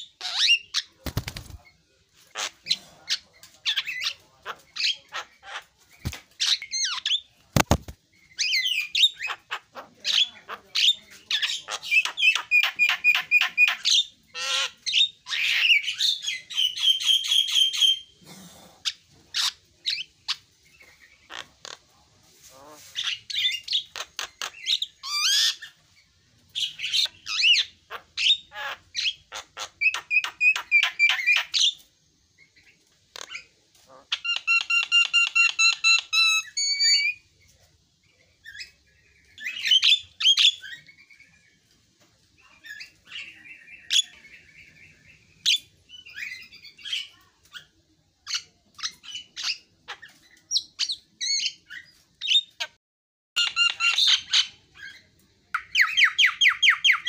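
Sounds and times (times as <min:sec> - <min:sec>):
bird harsh clicks: 0:07.6 - 0:08.0.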